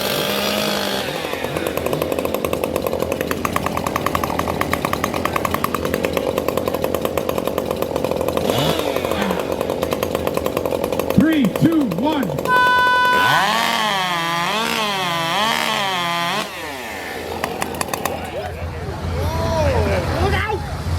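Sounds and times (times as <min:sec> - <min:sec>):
chainsaw idling: 0:00.0 - 0:18.7.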